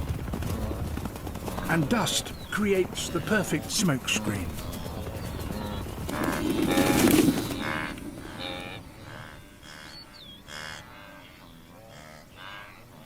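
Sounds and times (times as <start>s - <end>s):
wildebeest mooing grunts: 7.6s - 13.0s.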